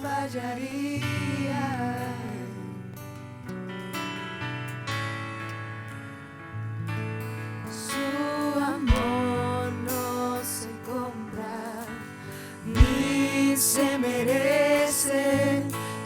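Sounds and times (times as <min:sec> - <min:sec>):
person singing slow worship song: 0:00.0 - 0:03.8, 0:07.5 - 0:16.0.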